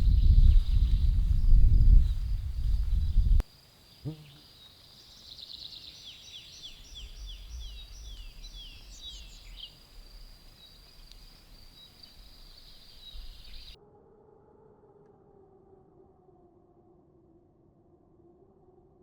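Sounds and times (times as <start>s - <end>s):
songbird singing: 0.0s - 13.8s.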